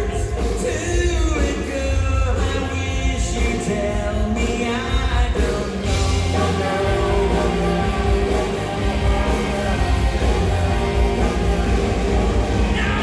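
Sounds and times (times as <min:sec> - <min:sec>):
person singing: 0:00.0 - 0:13.0
rock band playing: 0:00.0 - 0:13.0
loud guitar passage: 0:05.7 - 0:13.0.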